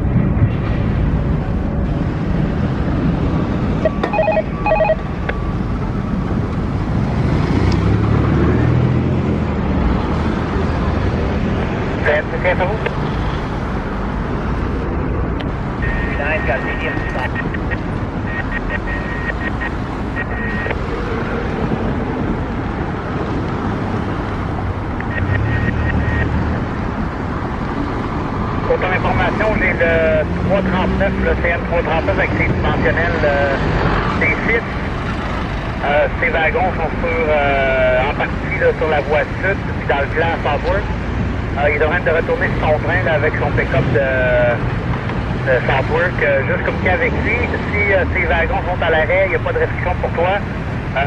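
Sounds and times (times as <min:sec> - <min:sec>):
steady background noise: 0:00.0 - 0:51.0
vehicle rumble: 0:00.0 - 0:51.0
radio scanner dialing beeps: 0:03.8 - 0:05.0, 0:15.8 - 0:20.8, 0:25.0 - 0:26.3.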